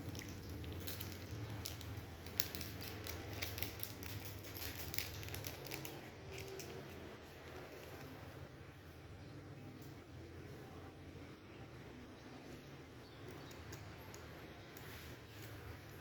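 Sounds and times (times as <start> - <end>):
small parts clicking and tapping: 0.0 - 8.1, 13.2 - 16.0.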